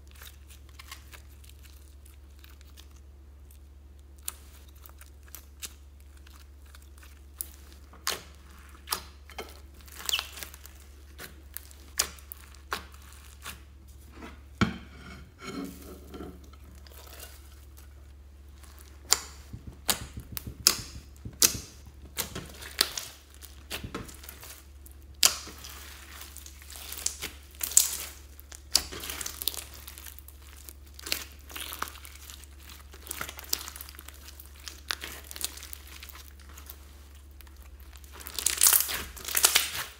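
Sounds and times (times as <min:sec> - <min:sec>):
slime crackling and clicking: 0:18.7 - 0:25.7.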